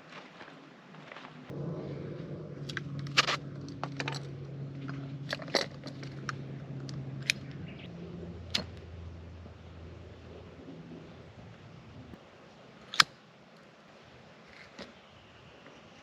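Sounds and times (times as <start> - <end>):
steady low hum: 1.2 - 12.9.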